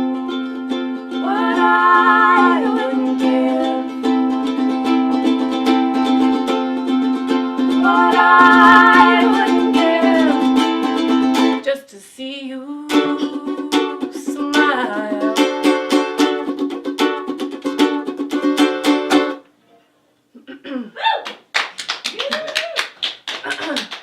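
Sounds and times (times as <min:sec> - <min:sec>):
electric ukuleles strumming: 0:00.0 - 0:11.6, 0:12.9 - 0:19.4.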